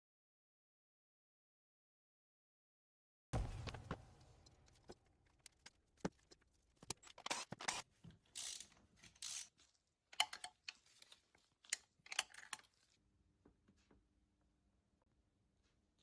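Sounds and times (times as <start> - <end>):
small objects clicking and knocking: 3.4 - 7.8.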